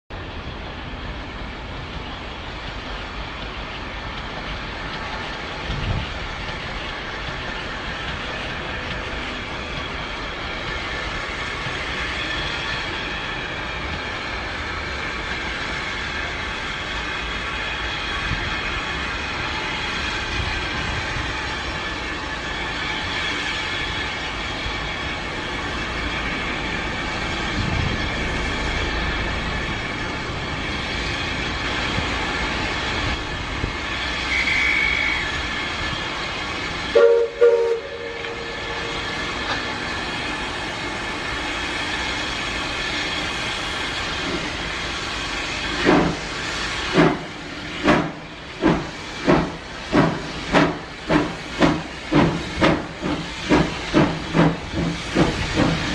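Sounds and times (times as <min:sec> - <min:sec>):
steam locomotive exhaust beats: 0:00.1 - 0:55.9
steam hissing: 0:00.7 - 0:55.9
steam locomotive whistle toots: 0:34.1 - 0:35.8, 0:36.8 - 0:39.6.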